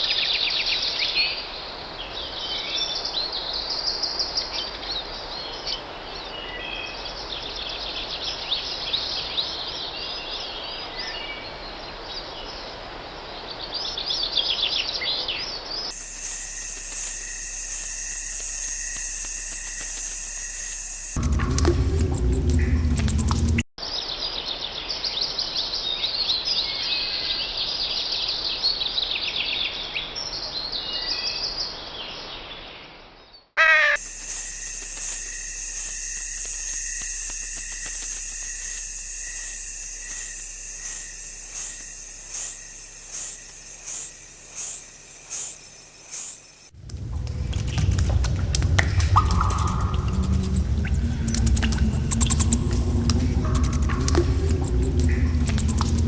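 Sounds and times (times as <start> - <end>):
loud low rumble: 15.9 - 23.7, 46.8 - 56.0
steady high buzz: 15.9 - 23.7, 34.0 - 56.0
repeating call: 33.6 - 45.6.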